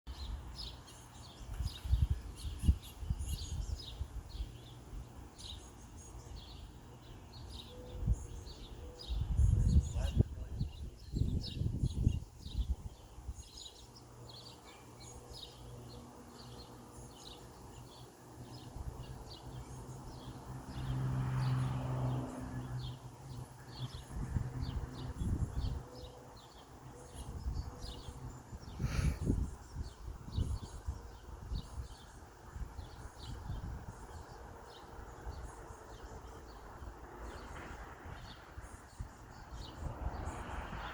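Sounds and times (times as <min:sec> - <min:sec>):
small birds chirping: 0:00.1 - 0:40.9.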